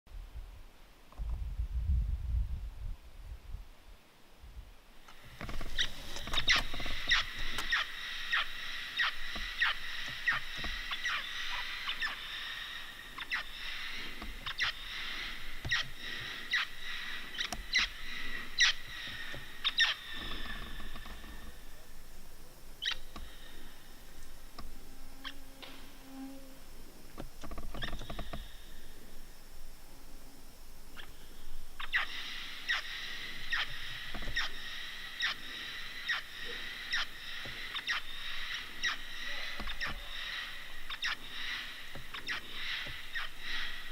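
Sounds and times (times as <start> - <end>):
parrots calling: 5.7 - 22.0, 22.8 - 23.6, 30.9 - 43.9.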